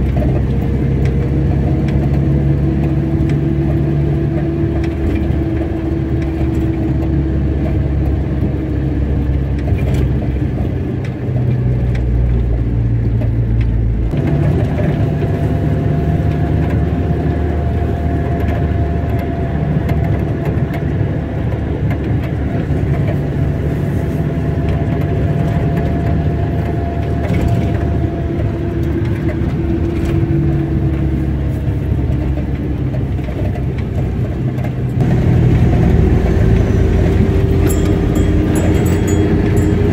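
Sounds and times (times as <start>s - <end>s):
car engine running: 0.0s - 39.9s
road noise: 0.0s - 39.9s.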